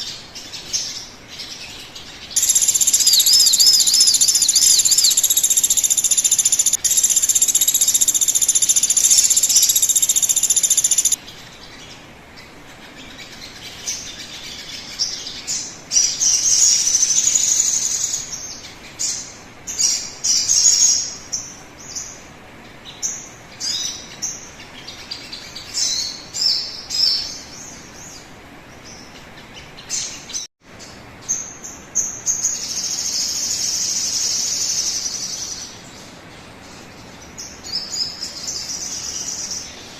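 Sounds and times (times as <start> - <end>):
high ringing bird song: 0.0 - 11.2, 15.4 - 22.0
high bird chirps and whistles: 2.4 - 11.2, 16.4 - 18.2.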